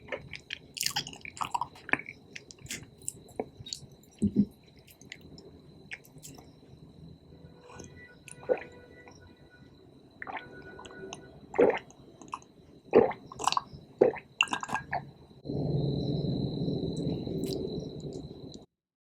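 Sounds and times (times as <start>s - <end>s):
wet chewing and mouth smacks: 0.1s - 6.5s, 11.6s - 15.0s
steady low noise: 15.4s - 18.7s.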